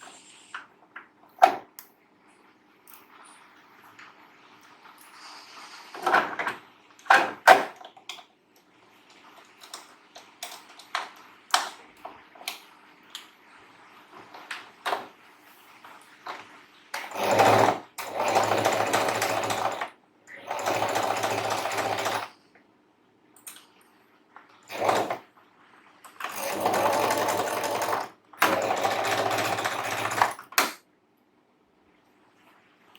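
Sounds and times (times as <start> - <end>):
electric sewing machine running: 17.0 - 22.3, 24.7 - 25.2, 26.2 - 30.5.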